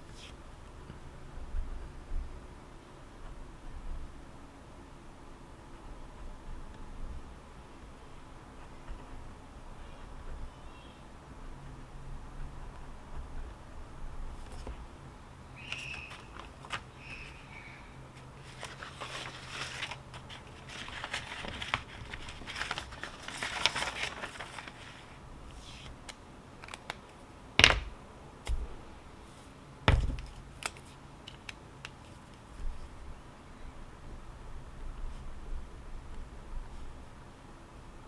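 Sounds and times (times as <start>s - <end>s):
paper rustling: 14.3s - 14.8s, 15.6s - 17.4s, 18.1s - 27.9s.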